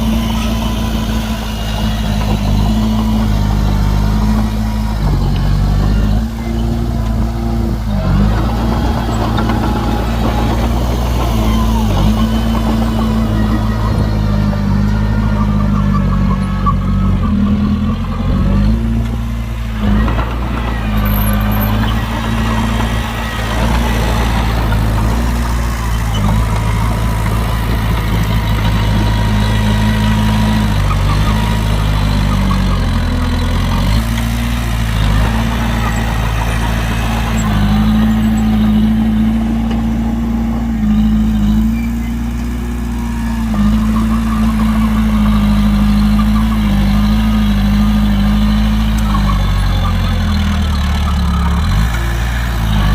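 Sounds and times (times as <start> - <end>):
heavy diesel engine running: 0.0 - 52.9.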